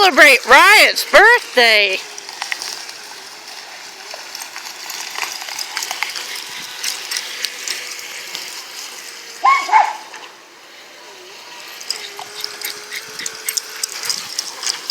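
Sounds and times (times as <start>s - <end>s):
dog yelping: 9.4s - 10.2s.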